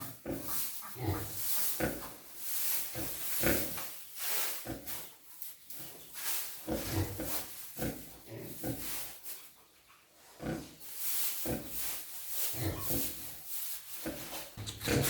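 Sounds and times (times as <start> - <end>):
pigs grunting: 0.0 - 2.2, 10.4 - 10.8, 14.1 - 15.0.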